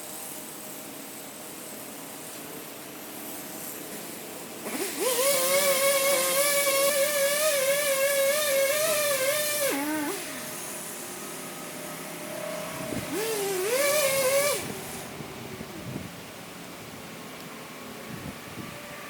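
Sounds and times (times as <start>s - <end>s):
chainsaw revving: 4.6s - 10.8s, 12.8s - 15.0s.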